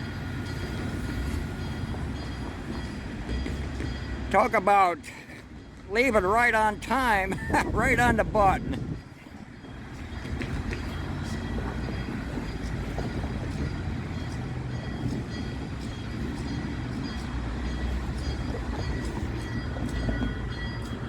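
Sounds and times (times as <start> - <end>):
train wheels clicking: 0.0 - 4.6, 9.0 - 21.0
train rolling past rumbling: 0.0 - 21.0.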